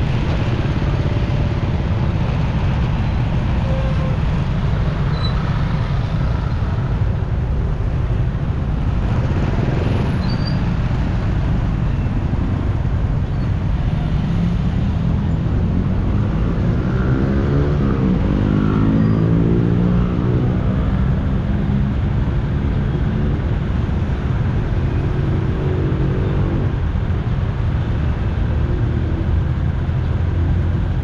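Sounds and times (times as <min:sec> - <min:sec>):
engine revving: 0:15.6 - 0:21.0.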